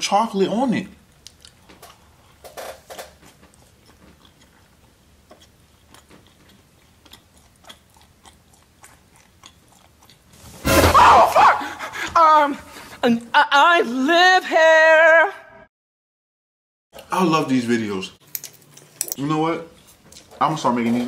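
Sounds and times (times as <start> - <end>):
person chewing donut: 1.0 - 10.6.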